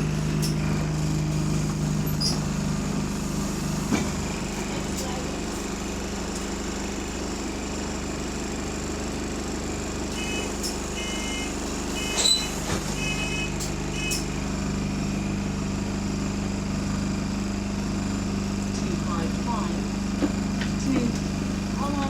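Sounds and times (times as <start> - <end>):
bus diesel engine running: 0.0 - 22.0
short beeps: 10.2 - 14.3.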